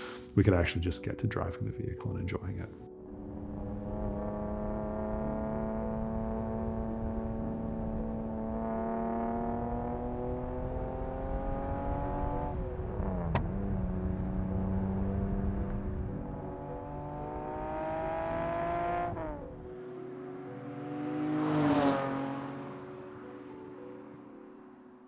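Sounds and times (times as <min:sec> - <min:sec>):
car engine accelerating hard: 0:03.1 - 0:23.0
car passing by: 0:17.6 - 0:24.1.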